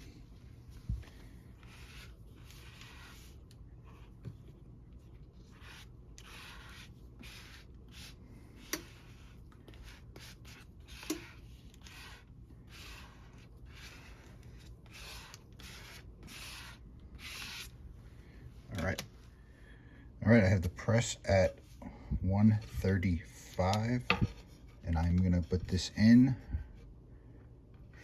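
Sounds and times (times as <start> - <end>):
hands rubbing damp paper: 5.3 - 17.7.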